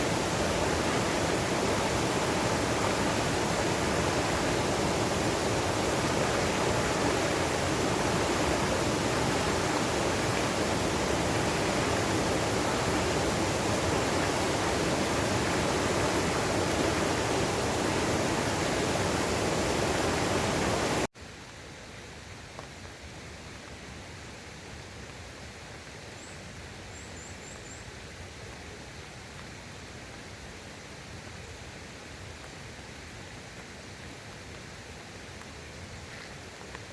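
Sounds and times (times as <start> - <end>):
stream rushing: 0.0 - 21.1.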